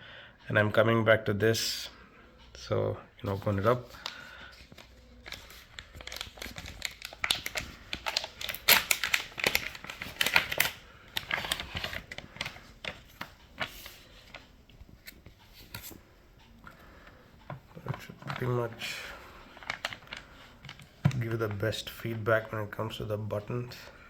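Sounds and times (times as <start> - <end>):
plastic packaging crinkling: 3.3 - 16.0, 17.8 - 22.8.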